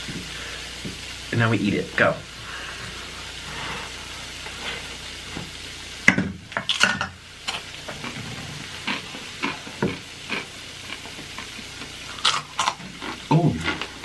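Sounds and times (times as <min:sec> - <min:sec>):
crunching and chewing snacks: 0:08.8 - 0:14.0.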